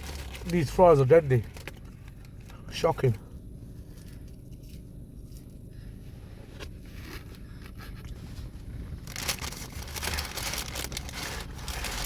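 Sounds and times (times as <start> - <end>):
paper food packaging rustling: 0.0 - 2.1, 7.0 - 12.0
low steady hum: 0.0 - 12.0.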